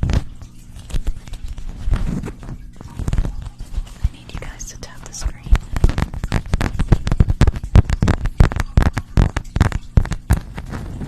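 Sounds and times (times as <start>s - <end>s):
rapid close tapping and clicking: 0.0s - 11.0s.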